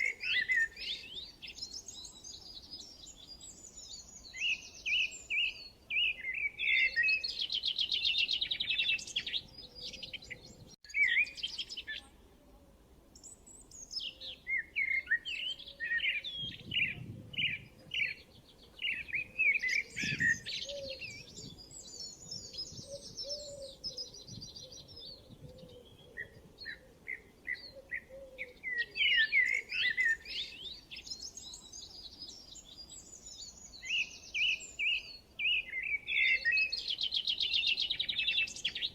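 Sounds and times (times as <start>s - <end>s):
birds chirping and trilling: 0.0s - 12.1s, 13.2s - 38.9s.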